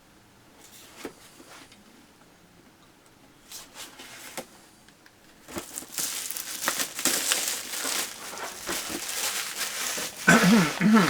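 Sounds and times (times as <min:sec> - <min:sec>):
plastic packaging crinkling: 0:05.4 - 0:11.0.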